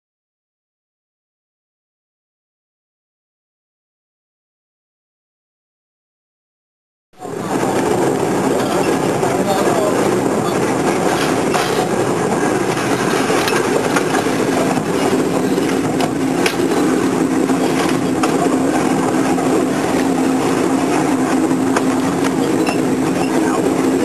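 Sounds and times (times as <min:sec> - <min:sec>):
steady hum: 0:07.2 - 0:24.0
train wheels rumbling: 0:07.2 - 0:24.0.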